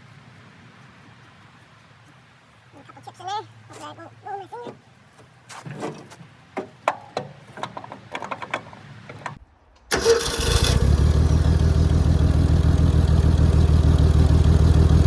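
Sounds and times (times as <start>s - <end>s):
engine cranking and running: 9.9s - 15.0s.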